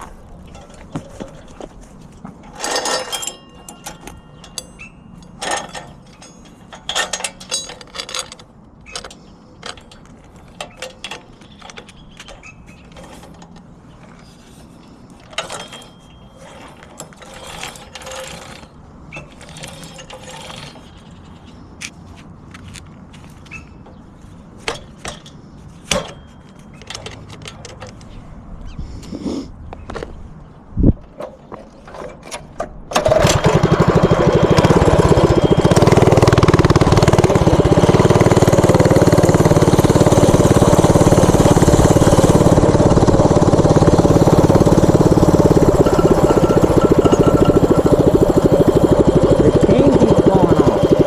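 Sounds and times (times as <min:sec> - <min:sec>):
metal tools clicking and clanking: 0:02.4 - 0:13.7, 0:14.8 - 0:21.6, 0:44.2 - 0:48.9.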